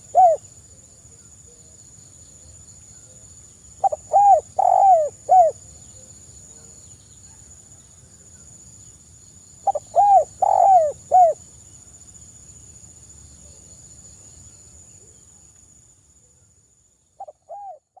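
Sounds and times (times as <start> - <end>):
dove cooing: 0.0 - 0.4, 3.8 - 5.6, 9.6 - 11.4, 17.2 - 18.0.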